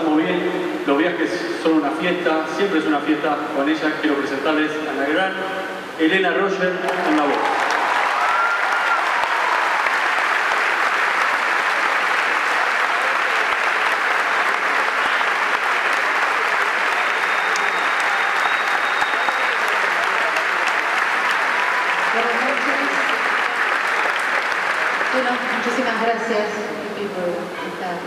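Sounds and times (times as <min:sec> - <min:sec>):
audience applauding: 0:06.8 - 0:26.3.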